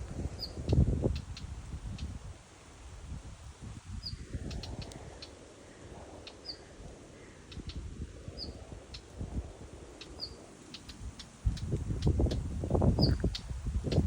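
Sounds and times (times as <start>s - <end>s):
bird chirping: 10.0s - 14.0s.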